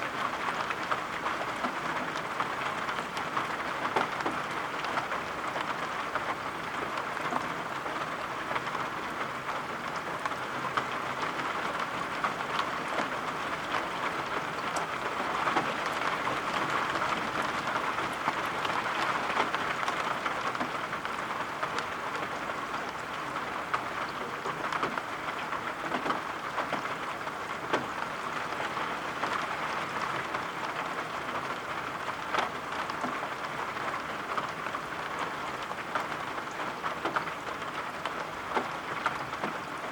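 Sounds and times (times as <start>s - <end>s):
steady rain falling: 0.0s - 39.9s
raindrop taps: 23.7s - 26.9s, 27.6s - 28.1s, 34.4s - 39.7s.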